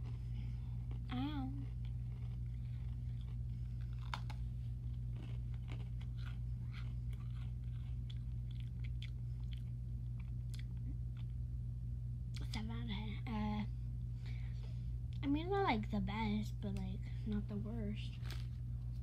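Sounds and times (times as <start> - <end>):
cookie crunching: 0.0 - 11.4, 18.0 - 19.0
steady low hum: 0.0 - 19.0.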